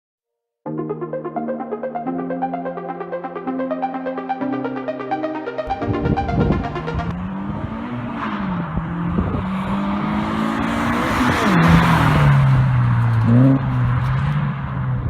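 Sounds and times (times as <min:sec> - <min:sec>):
loud car engine exhaust: 0:07.1 - 0:15.0.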